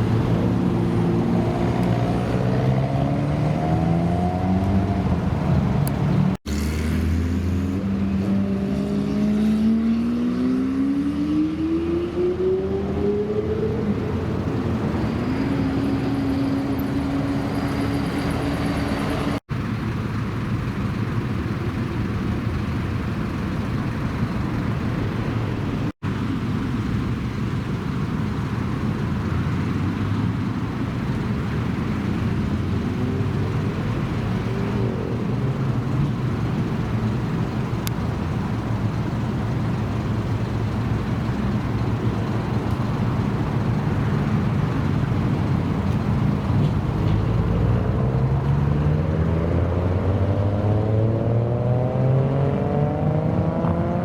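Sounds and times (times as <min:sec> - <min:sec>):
car engine revving: 0:00.0 - 0:19.4, 0:32.2 - 0:54.0.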